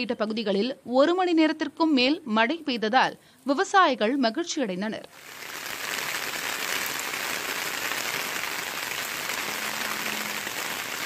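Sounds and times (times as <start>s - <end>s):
faint steady hum: 5.0s - 11.0s
rain on a paved street: 5.1s - 11.0s.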